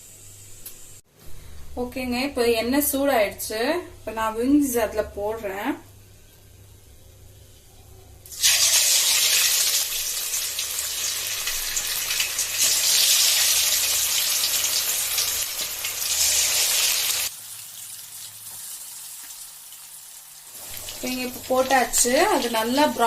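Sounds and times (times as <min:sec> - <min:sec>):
chicken frying in hot oil: 0:08.3 - 0:23.0.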